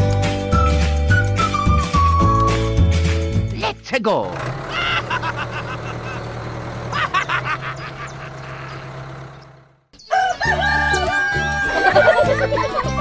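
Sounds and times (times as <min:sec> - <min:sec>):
cheerful background music: 0:00.0 - 0:04.2, 0:10.5 - 0:13.0
rooster crowing: 0:10.0 - 0:12.2.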